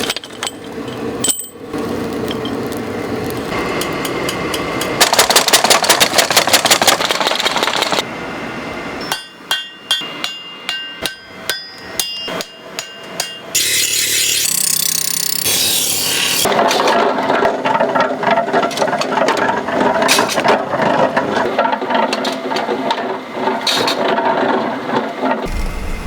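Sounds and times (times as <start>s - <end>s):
hammer blows ringing on anvil: 9.0s - 13.6s
steady rushing noise: 25.5s - 26.0s.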